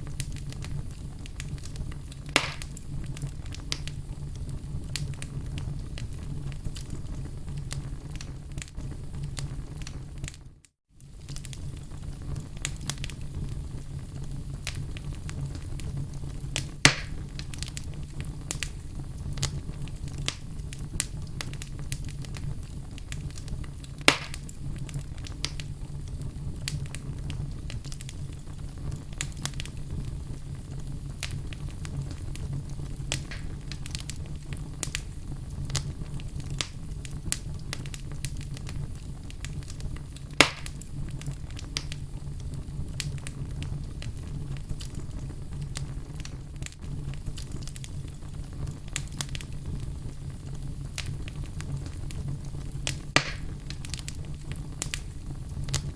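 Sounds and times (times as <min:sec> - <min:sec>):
wood fire crackling: 0:00.0 - 0:55.9
logs popping: 0:00.1 - 0:04.0, 0:16.6 - 0:17.8, 0:22.9 - 0:25.7, 0:33.0 - 0:35.0, 0:39.5 - 0:42.0, 0:52.8 - 0:55.0.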